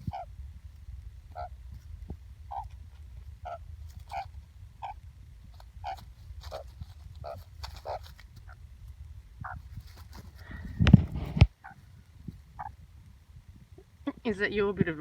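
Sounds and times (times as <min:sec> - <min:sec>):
magpie squawking: 0:00.0 - 0:00.3, 0:01.3 - 0:01.6, 0:02.5 - 0:02.8, 0:03.4 - 0:05.0, 0:05.8 - 0:08.6, 0:11.6 - 0:11.8, 0:12.6 - 0:12.8.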